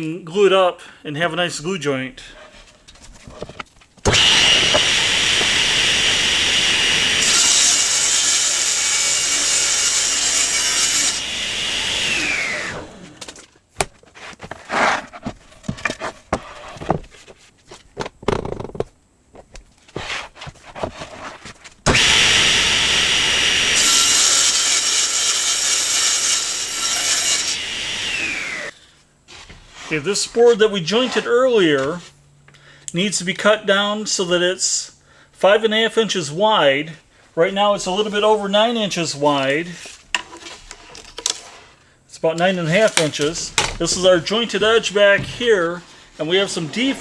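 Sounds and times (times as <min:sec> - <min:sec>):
saw spinning down whine: 0:04.1 - 0:13.3, 0:21.9 - 0:28.7
table saw cutting wood: 0:04.1 - 0:13.4, 0:21.9 - 0:28.7, 0:42.6 - 0:47.0
board knocking and clattering: 0:13.1 - 0:21.6, 0:42.8 - 0:44.1.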